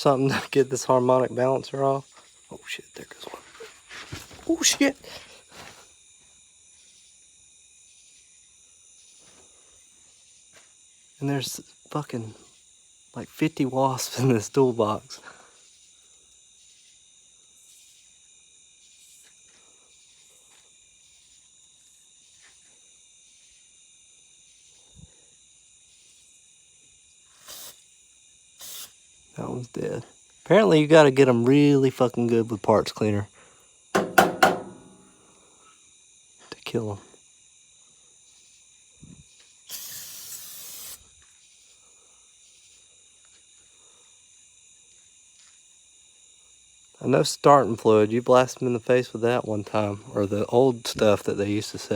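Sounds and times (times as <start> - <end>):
insect chorus chirring: 0.0 - 51.9
aerosol spray hiss: 27.2 - 29.0, 38.3 - 41.8, 42.4 - 42.9
aerosol can spraying: 27.4 - 27.8, 28.6 - 29.0, 39.7 - 41.0
soft knock: 34.0 - 35.0
dull thump: 34.0 - 35.1.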